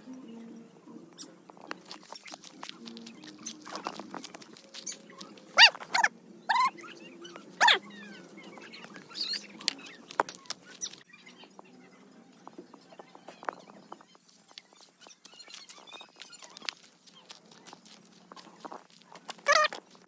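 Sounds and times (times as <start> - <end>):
animal calling: 2.2 - 11.6, 15.0 - 19.8.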